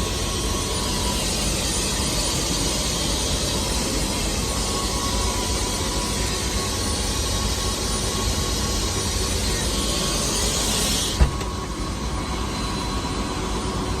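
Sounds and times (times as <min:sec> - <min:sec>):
helicopter engine and rotor drone: 0:00.0 - 0:14.0
thump: 0:11.2 - 0:11.6.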